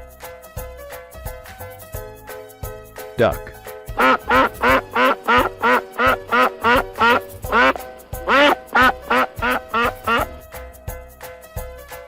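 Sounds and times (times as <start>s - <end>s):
cheerful background music: 0.0s - 12.0s
duck quacking: 4.0s - 10.5s.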